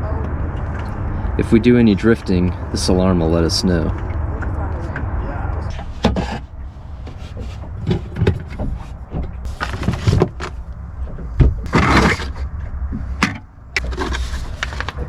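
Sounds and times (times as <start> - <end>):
steady low rumble: 0.0 - 15.0
rustling: 6.7 - 10.8, 13.8 - 15.0
handling knocks and clatters: 7.1 - 15.0.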